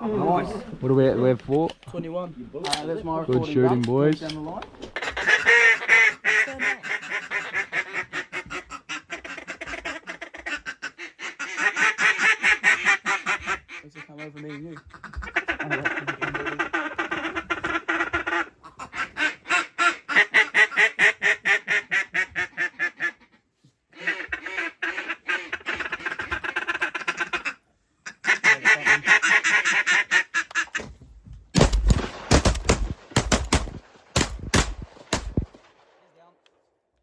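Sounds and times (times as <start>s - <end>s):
duck call rapid quacks: 5.0s - 30.8s
shotgun shots: 31.6s - 36.3s.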